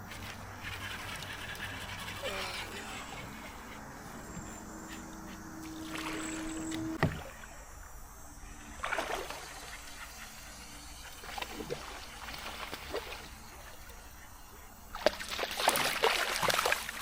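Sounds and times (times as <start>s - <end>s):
faint steady hum: 0.0s - 15.2s
water sloshing and splashing: 0.0s - 17.0s.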